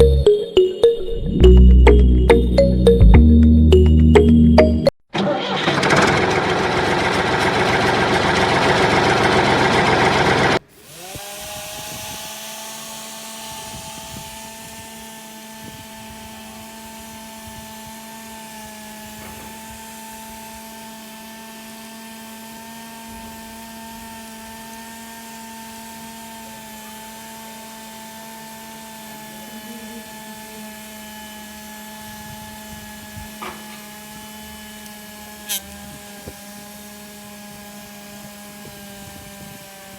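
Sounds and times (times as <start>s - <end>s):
small electric motor whining: 10.6s - 39.9s.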